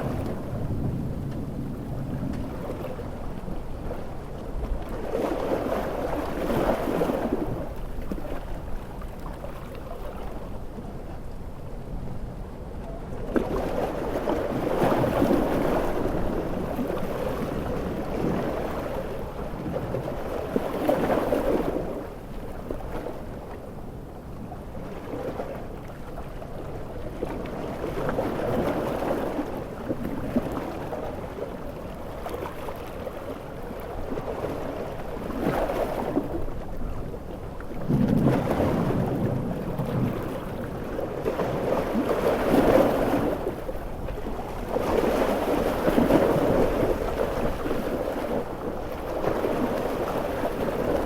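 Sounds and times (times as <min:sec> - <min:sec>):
ocean waves breaking: 0:00.0 - 0:11.3, 0:13.3 - 0:51.0.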